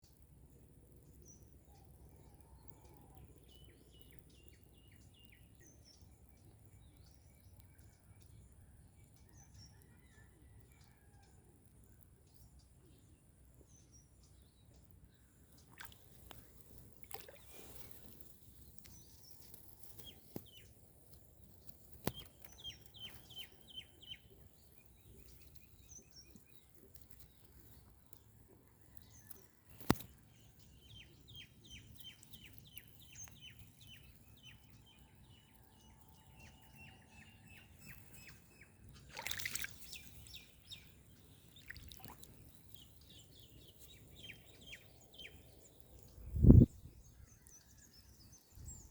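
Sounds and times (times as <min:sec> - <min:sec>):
small birds chirping: 0:13.8 - 0:48.9.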